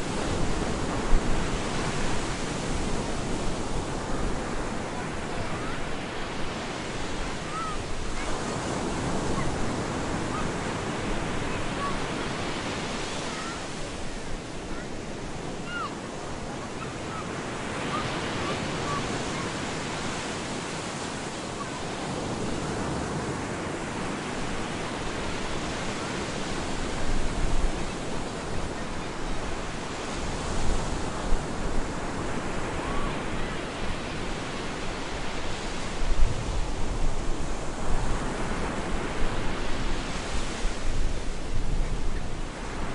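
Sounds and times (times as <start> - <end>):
ocean surf breaking: 0.0 - 42.9.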